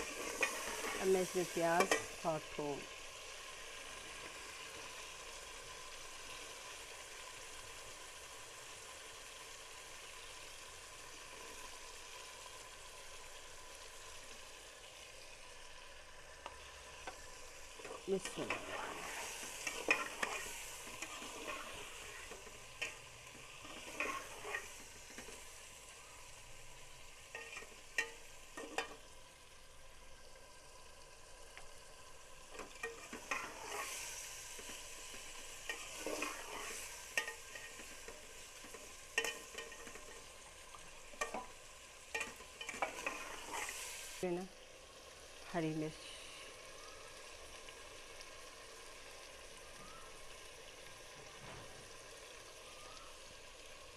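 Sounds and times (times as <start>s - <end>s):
chicken sizzling in hot oil: 0.0s - 53.9s
spoon scraping and knocking pot: 39.2s - 40.2s.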